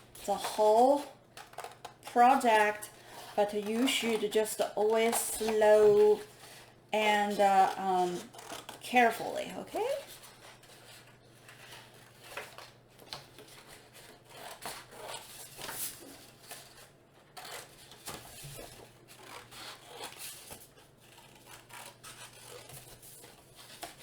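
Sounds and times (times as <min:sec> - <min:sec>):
paper rustling: 0:04.9 - 0:24.0
scissors snipping paper: 0:09.8 - 0:24.0.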